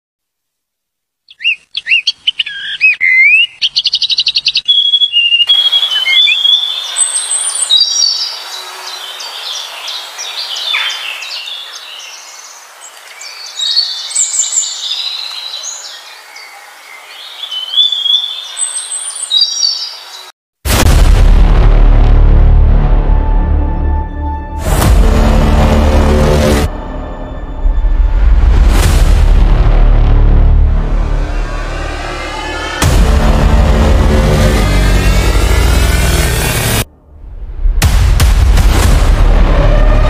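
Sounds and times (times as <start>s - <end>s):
birds singing: 1.2s - 20.3s.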